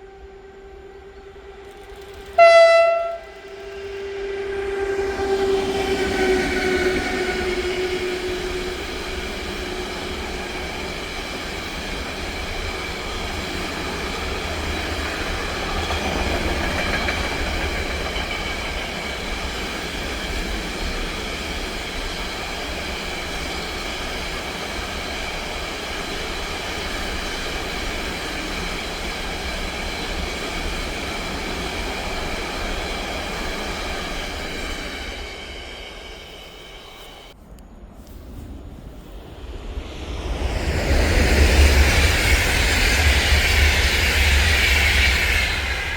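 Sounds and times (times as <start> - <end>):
train horn: 0.0 - 10.3
train wheels rumbling: 0.0 - 45.9.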